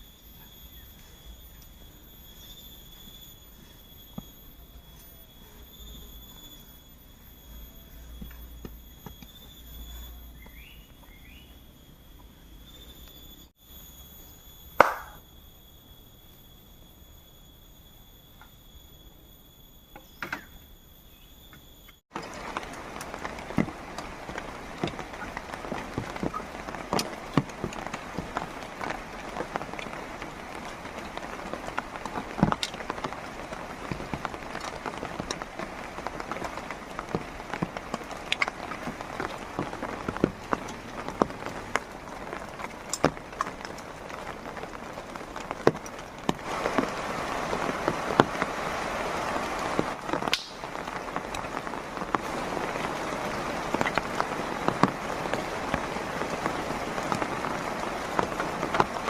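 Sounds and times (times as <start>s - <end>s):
heavy rain falling: 22.1s - 59.0s.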